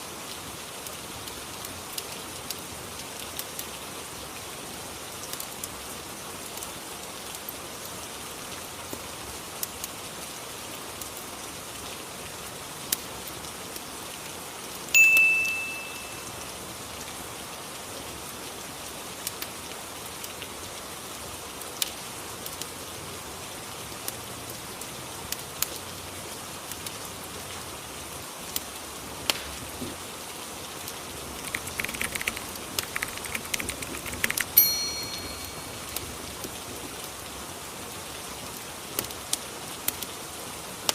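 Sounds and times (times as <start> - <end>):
steady rain: 0.0 - 40.9
bell-like chimes: 15.0 - 16.4, 34.4 - 36.2.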